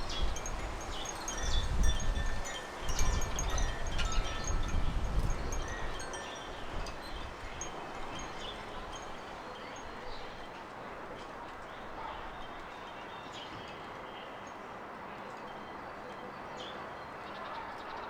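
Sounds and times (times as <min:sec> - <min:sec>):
steady outdoor hiss: 0:00.0 - 0:18.0
wind chime ringing: 0:00.1 - 0:10.4.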